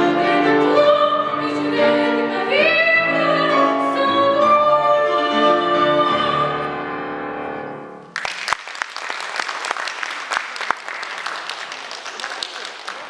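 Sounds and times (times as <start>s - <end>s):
child singing classical: 0.0s - 6.8s
piano accompaniment: 0.0s - 8.2s
audience applause: 8.1s - 13.0s.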